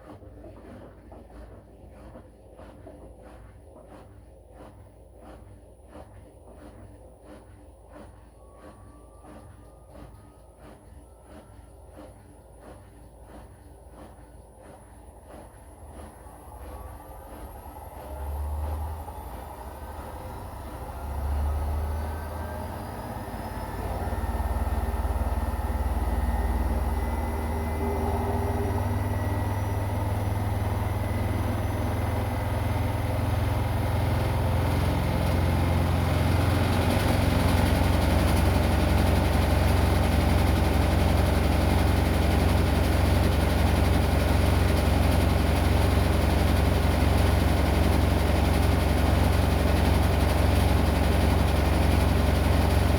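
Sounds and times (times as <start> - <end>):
washing machine spinning: 0.0 - 52.9.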